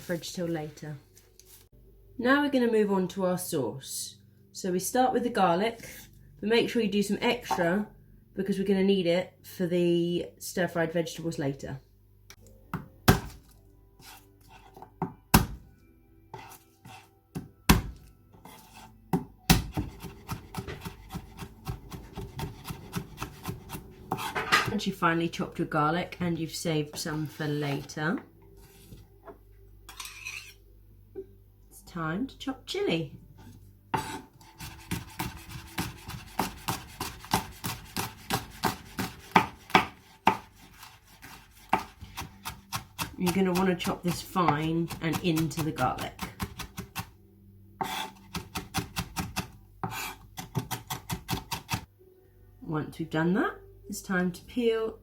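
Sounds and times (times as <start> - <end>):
knife chopping on board: 12.8 - 15.6, 16.4 - 24.8, 33.9 - 47.1, 47.8 - 51.8.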